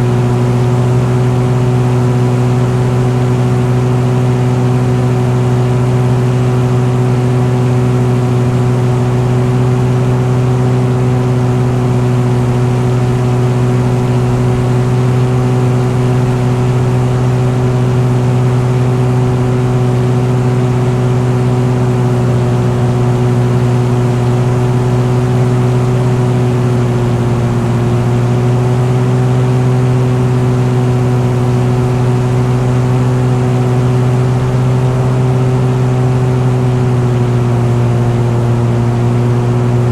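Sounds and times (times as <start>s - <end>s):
engine droning steadily: 0.0s - 39.9s.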